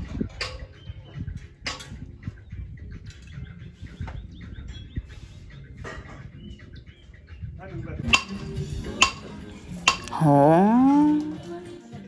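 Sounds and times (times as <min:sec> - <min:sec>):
birds chirping: 0:00.6 - 0:07.6.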